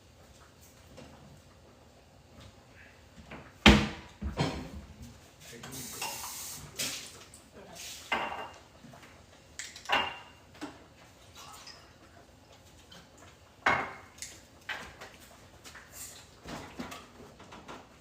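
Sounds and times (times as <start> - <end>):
dishes clinking: 4.3 - 4.8, 8.1 - 8.6, 9.6 - 10.4.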